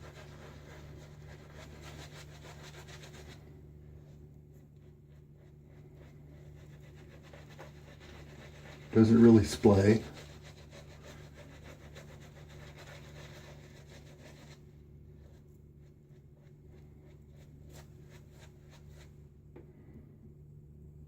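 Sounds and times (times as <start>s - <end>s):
shaving brush scratching lather: 0.0s - 19.1s.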